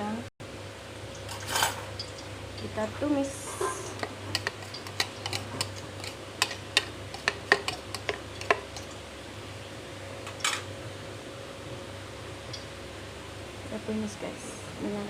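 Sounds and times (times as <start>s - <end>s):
steady low hum: 0.0s - 15.0s
metal utensils clinking on cookware: 1.3s - 1.9s.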